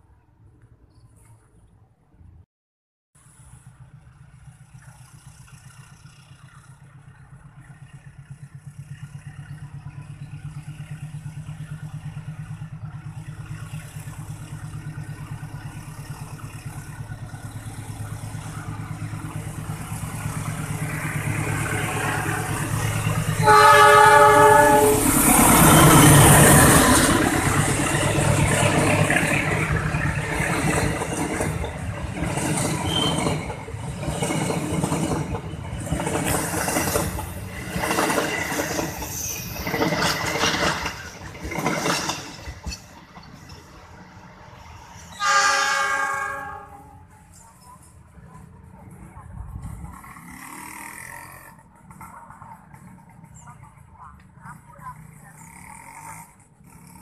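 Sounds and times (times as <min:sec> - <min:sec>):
diesel locomotive engine drone: 0:03.2 - 0:57.0
train horn: 0:23.4 - 0:25.2, 0:45.1 - 0:47.1
coaches clattering over rail joints: 0:25.2 - 0:44.1.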